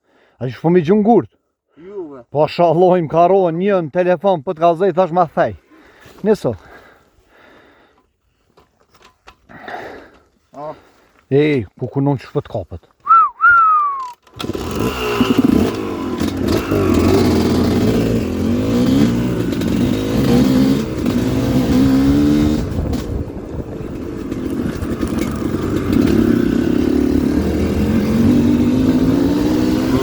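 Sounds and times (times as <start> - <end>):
falling whistle-like tones: 13.0 - 14.2
dirt bike engines revving: 14.0 - 30.0.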